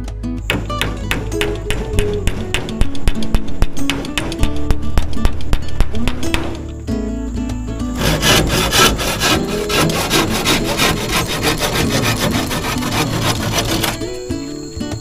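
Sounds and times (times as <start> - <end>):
hand saw cutting wood: 8.0 - 14.1.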